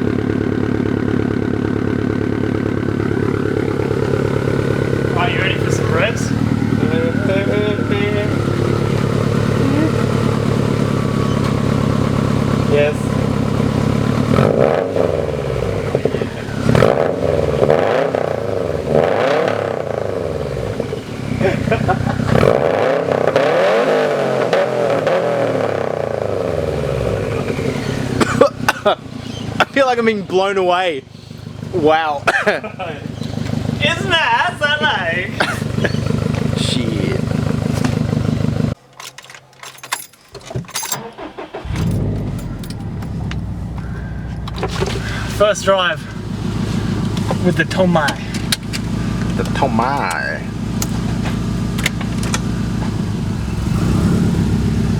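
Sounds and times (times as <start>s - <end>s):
car engine revving through exhaust: 2.8s - 29.8s, 34.8s - 38.8s, 41.6s - 54.9s.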